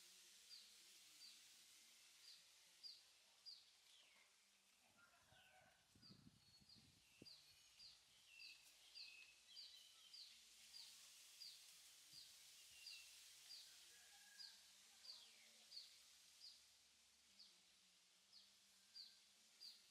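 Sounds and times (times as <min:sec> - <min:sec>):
bird chirping: 0:06.1 - 0:11.6.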